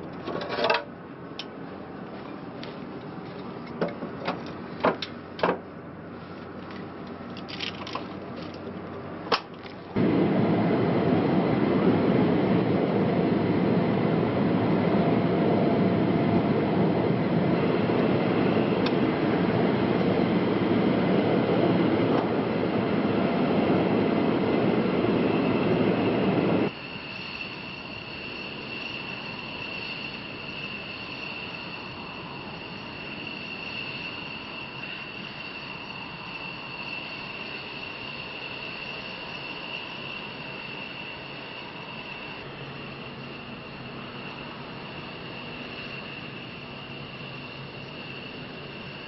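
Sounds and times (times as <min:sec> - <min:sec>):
loud steady rushing noise: 0:10.0 - 0:49.0.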